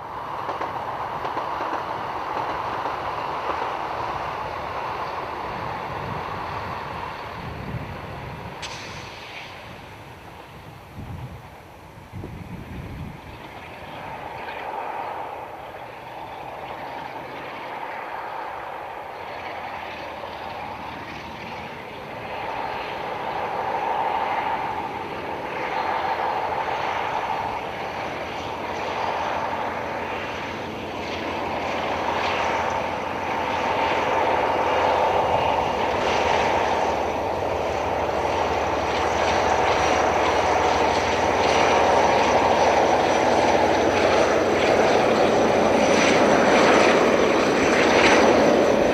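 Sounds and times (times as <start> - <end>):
diesel locomotive engine droning: 0.0 - 48.9.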